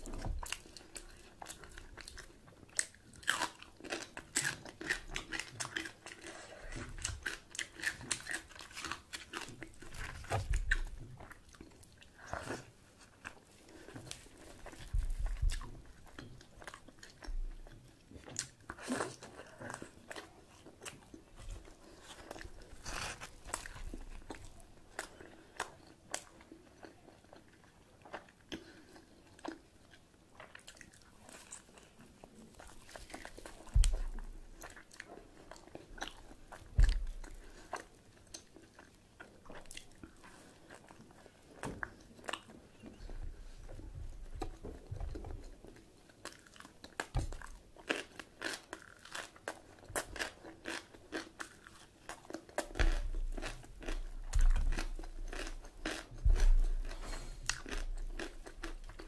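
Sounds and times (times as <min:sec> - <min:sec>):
person biting and chewing: 0:46.2 - 0:59.0.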